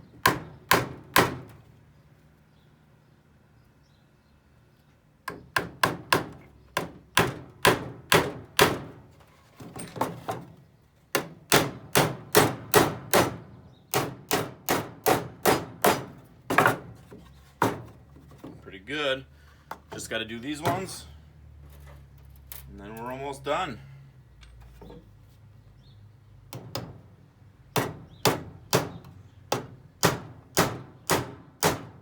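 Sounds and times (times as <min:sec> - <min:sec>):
hammer striking nails into wood: 0:00.2 - 0:01.5, 0:05.3 - 0:09.0, 0:11.1 - 0:16.9, 0:26.5 - 0:27.0, 0:27.7 - 0:32.0.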